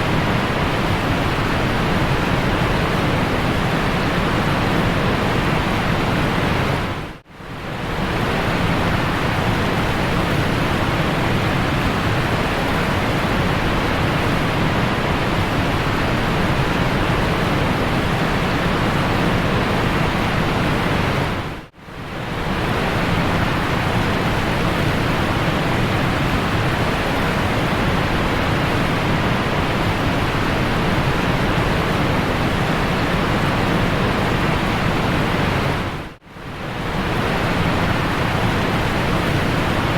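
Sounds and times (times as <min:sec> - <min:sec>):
waterfall roaring: 0:00.0 - 0:07.1, 0:22.2 - 0:39.9.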